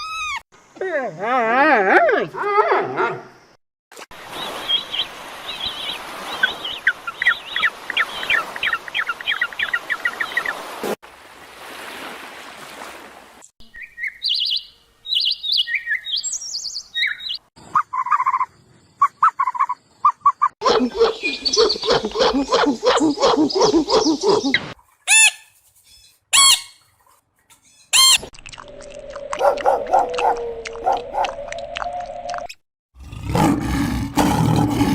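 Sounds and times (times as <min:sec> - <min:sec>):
bird-like chirps and tweets: 0:13.6 - 0:24.5.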